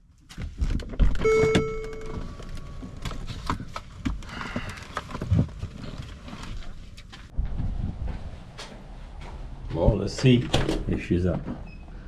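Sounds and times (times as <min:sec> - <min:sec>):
footsteps on hard surface: 0:05.2 - 0:10.4.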